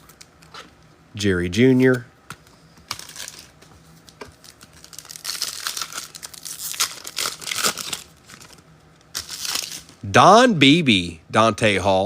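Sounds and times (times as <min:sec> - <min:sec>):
foil wrapper crinkling and tearing: 0:02.9 - 0:10.0.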